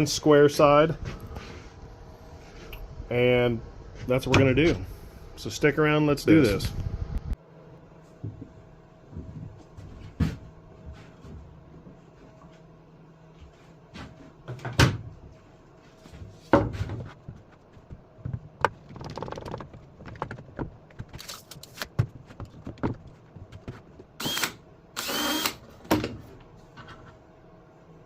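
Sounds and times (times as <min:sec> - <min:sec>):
plywood knocks and clatter: 0:16.4 - 0:21.2, 0:21.9 - 0:24.1
cordless drill bursts: 0:24.2 - 0:25.6.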